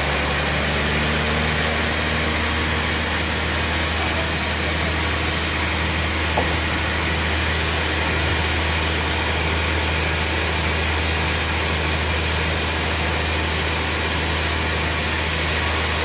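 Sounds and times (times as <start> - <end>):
low motor hum: 0.0 - 16.0
hiss of machinery: 13.0 - 16.0.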